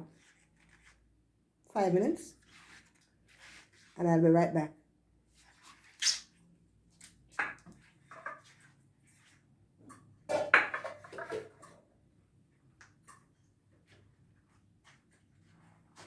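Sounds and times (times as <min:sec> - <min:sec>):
kitchen knocks and clatters: 0:09.9 - 0:11.8.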